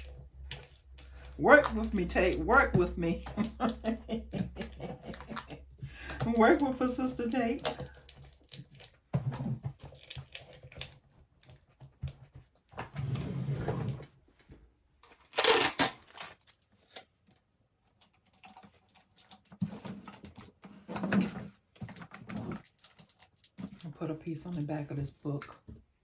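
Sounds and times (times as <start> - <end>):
tape being pulled: 15.2 - 17.1.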